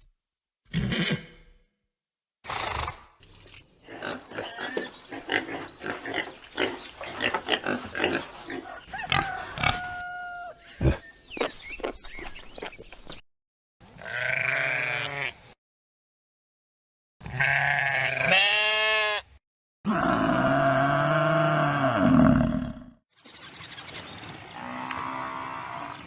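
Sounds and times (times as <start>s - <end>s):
pigs grunting: 3.8s - 11.6s
wavering animal bleat: 14.0s - 15.5s, 17.2s - 22.7s.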